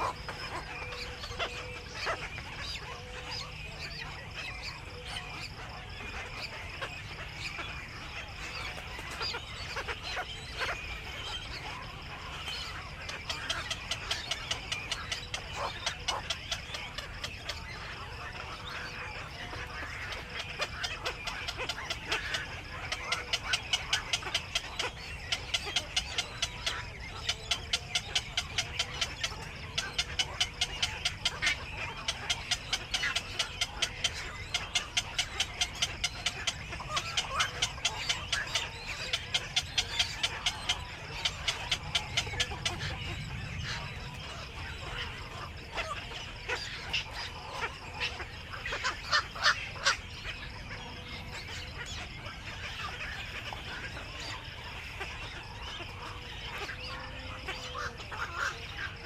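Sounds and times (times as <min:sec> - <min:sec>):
herons clucking clicks: 0:12.5 - 0:59.0.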